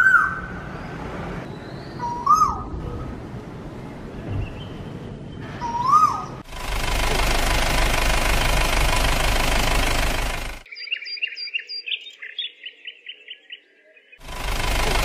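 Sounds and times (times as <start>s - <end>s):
bird chirping: 0.0s - 2.8s, 10.6s - 14.3s
vehicle engine knocking: 6.5s - 10.6s, 14.2s - 15.0s.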